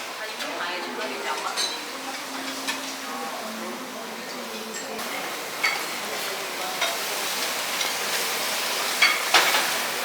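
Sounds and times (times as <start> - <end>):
restaurant background hiss: 0.0 - 10.0
dishes and cutlery clinking: 1.0 - 3.3, 5.6 - 7.0, 8.9 - 9.8.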